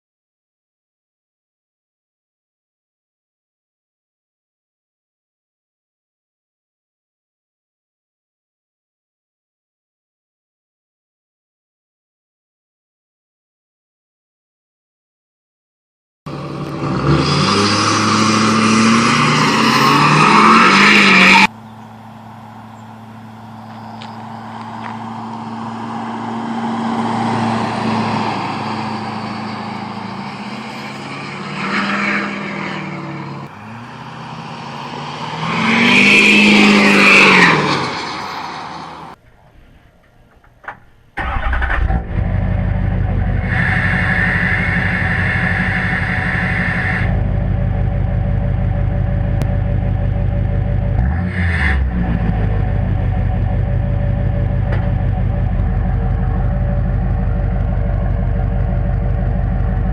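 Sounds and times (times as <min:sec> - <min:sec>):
diesel truck accelerating past: 0:16.3 - 0:39.2, 0:41.2 - 0:59.9.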